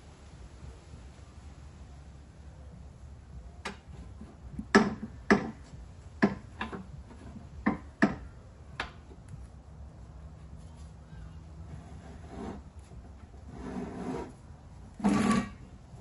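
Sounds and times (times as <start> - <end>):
sharp knocks and clicks: 4.6 - 5.6, 6.2 - 6.9.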